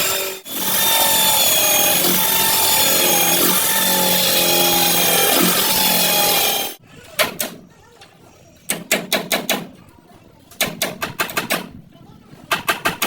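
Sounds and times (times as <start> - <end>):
power cutting tool on metal: 0.0 - 6.8.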